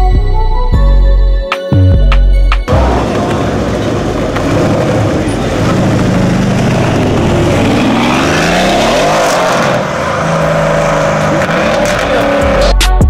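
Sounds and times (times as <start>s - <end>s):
car engine revving: 2.7s - 12.9s.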